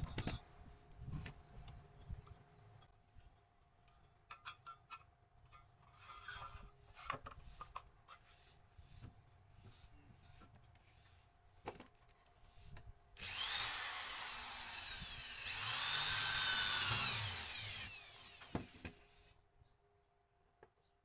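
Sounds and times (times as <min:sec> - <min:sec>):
wood rubbing and scraping: 0:12.5 - 0:18.8.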